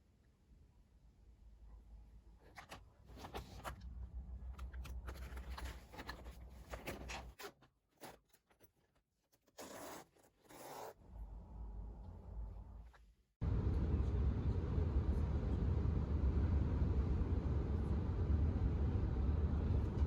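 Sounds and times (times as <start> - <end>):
scraping and rasping handling noises: 4.5 - 11.0.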